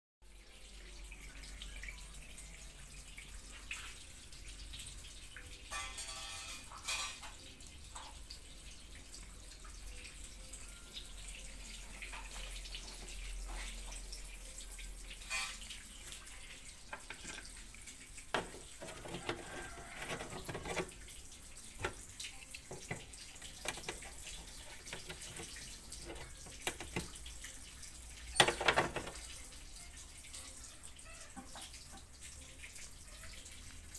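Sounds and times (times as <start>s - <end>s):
water trickling and dripping: 0.3s - 33.9s
light clicks and knocks: 16.9s - 17.6s, 18.3s - 21.0s, 21.8s - 27.2s, 28.4s - 29.3s.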